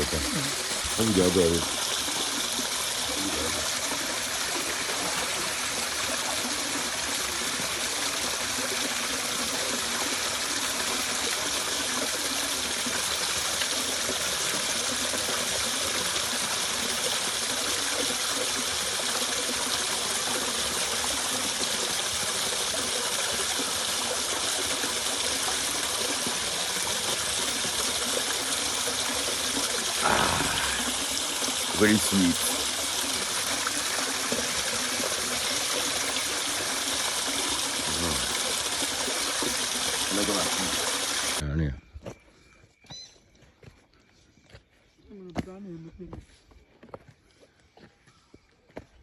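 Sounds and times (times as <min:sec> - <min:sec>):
river water rushing: 0:29.9 - 0:37.6.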